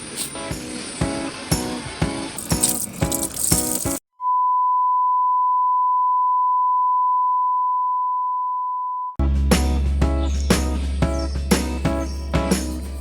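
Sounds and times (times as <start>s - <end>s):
background music: 9.2s - 13.0s.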